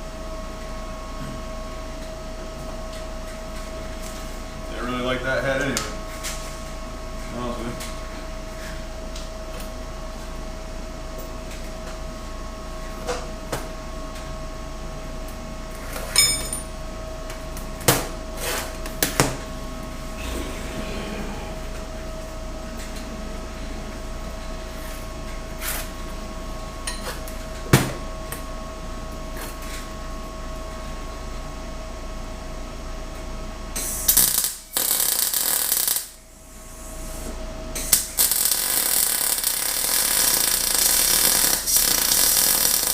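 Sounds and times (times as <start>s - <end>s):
steady hum: 0.0s - 42.9s
loud harsh noise: 20.0s - 22.2s.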